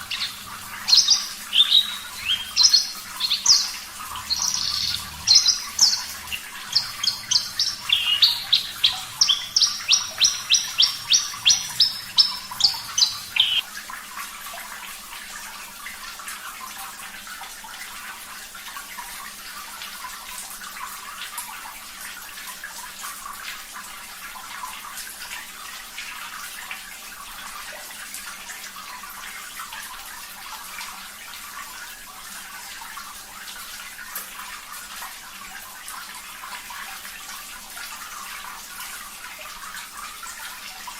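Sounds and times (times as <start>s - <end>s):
bird singing high notes: 0.0s - 13.6s
running water: 0.0s - 40.9s.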